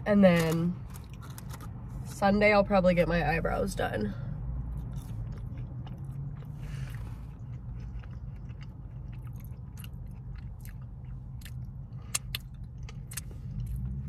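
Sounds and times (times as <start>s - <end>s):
wet chewing: 4.7s - 14.0s.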